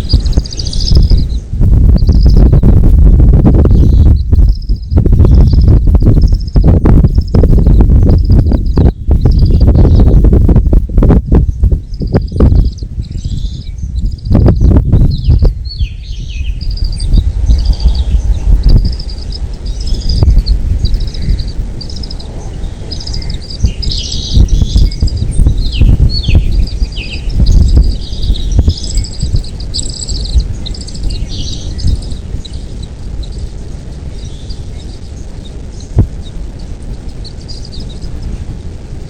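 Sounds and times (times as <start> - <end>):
birds chirping and trilling: 0.0 - 38.6
heavy low rumble: 0.0 - 39.0.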